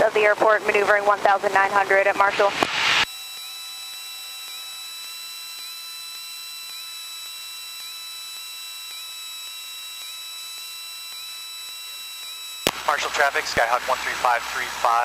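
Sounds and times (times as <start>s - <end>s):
radio electronic hiss and whine: 1.7s - 3.1s, 8.4s - 15.0s.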